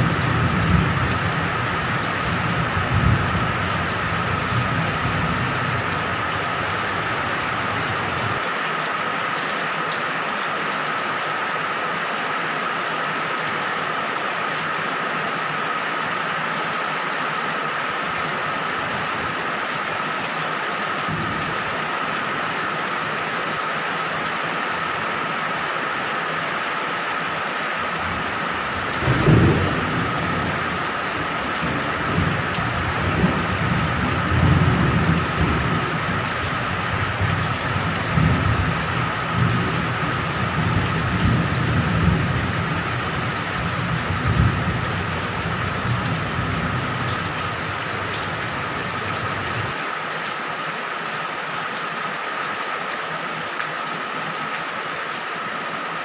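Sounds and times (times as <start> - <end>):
rolling thunder: 0.0 - 8.4, 28.6 - 49.8
heavy rain: 0.0 - 56.0.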